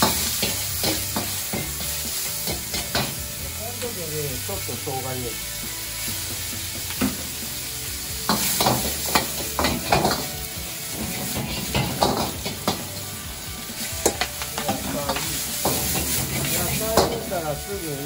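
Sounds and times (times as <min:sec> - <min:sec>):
pork sizzling in a wok: 0:00.0 - 0:18.0
metal ladle scraping a wok: 0:08.2 - 0:17.3.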